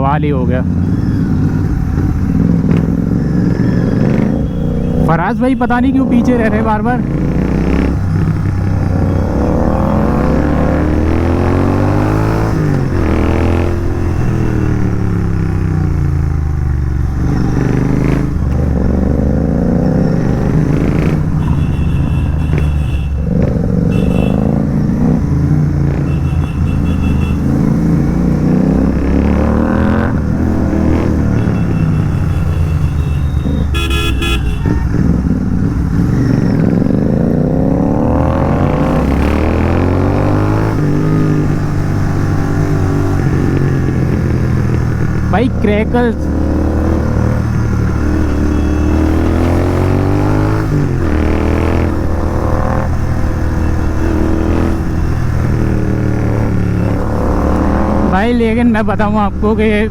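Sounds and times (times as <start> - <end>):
motorcycle engine revving: 0.0 - 59.9
vehicle horns honking: 3.6 - 6.6, 13.0 - 15.4, 20.4 - 24.7, 25.9 - 28.0, 30.7 - 35.3, 46.8 - 51.2.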